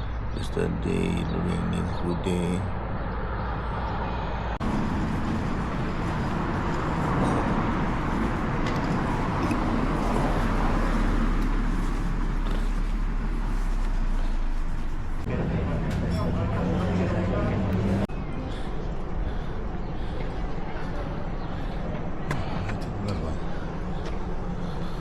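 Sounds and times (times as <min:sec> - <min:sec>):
road traffic: 0:00.0 - 0:25.0
heavy low rumble: 0:00.4 - 0:25.0.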